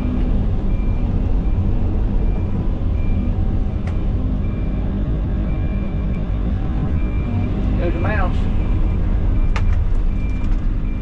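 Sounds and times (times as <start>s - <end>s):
diesel engine running under load: 0.0s - 11.0s.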